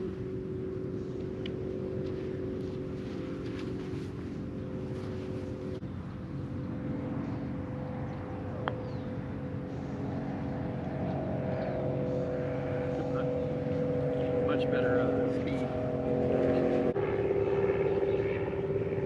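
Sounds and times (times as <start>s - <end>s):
golf cart motor hum: 0.0s - 6.8s, 7.4s - 19.0s
road and wind noise: 0.0s - 19.0s.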